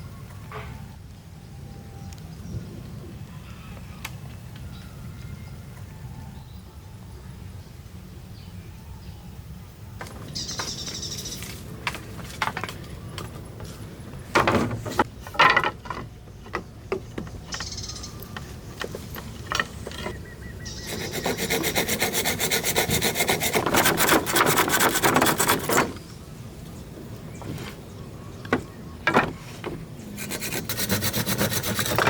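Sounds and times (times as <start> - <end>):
wood knocking and clattering: 14.3 - 20.3, 23.5 - 26.0, 28.4 - 30.0
hand tool rasping wood: 18.8 - 26.0, 30.0 - 32.0.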